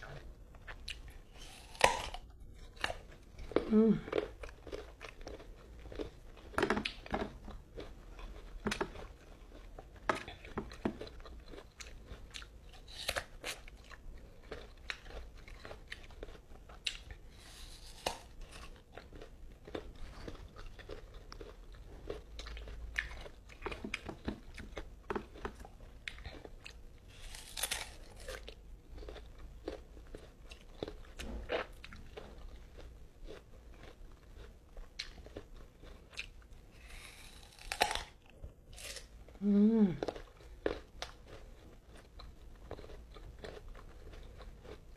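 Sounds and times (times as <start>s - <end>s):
person chewing crunchy fruit: 0.0s - 44.9s.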